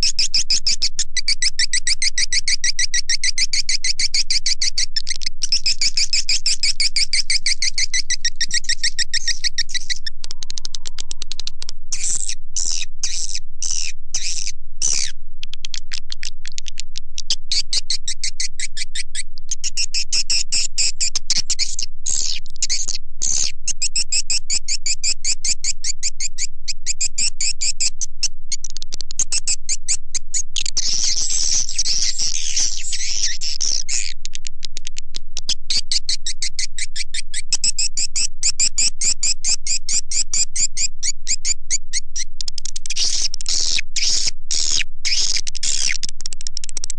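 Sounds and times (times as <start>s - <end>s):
swiftlets chirping and twittering: 30.8s - 34.1s.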